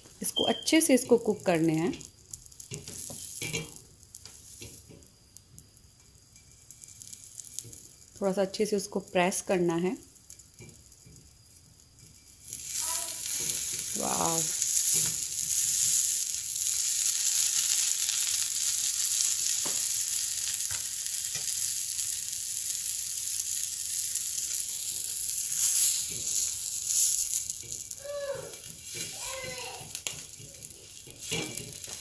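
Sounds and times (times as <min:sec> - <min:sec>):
butter sizzling on hot griddle: 0:00.0 - 0:32.0.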